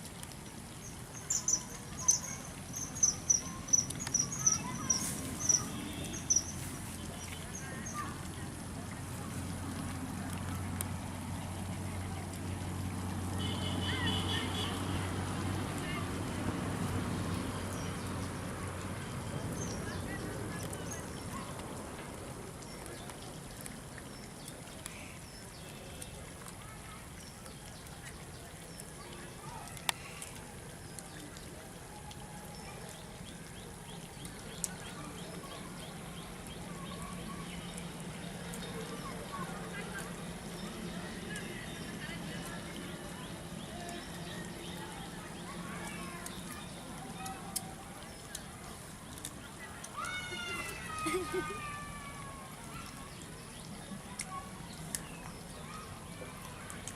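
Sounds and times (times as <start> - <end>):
outdoor background noise: 0.0 - 56.9
bird chirps: 1.2 - 8.0.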